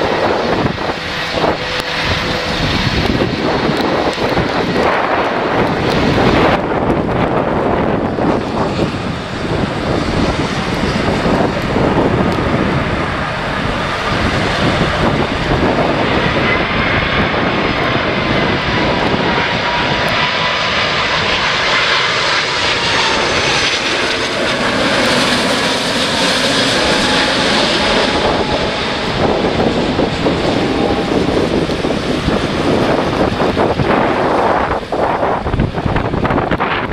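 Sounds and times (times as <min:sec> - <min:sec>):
jet engines rumbling and whining: 0:00.0 - 0:36.9
wind on microphone: 0:00.0 - 0:36.9.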